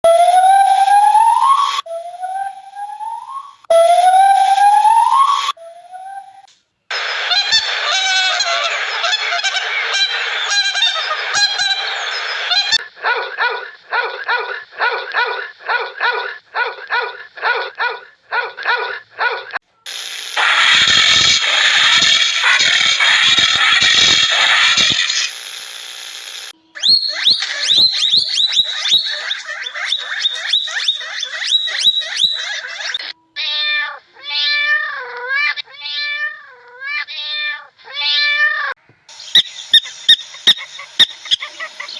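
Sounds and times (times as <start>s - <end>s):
animal calls: 5.1s - 19.6s, 20.4s - 25.3s, 26.8s - 35.8s, 39.3s - 41.9s.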